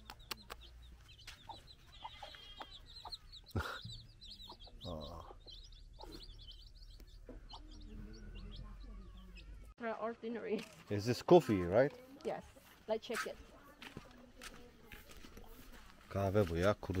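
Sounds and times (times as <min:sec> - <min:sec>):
chickens clucking: 0:00.0 - 0:09.7, 0:11.4 - 0:17.0
loud chicken calls: 0:01.9 - 0:03.8.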